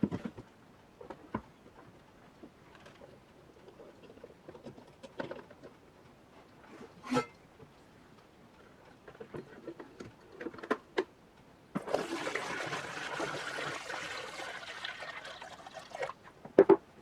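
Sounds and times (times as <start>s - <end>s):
water running: 11.8s - 16.3s.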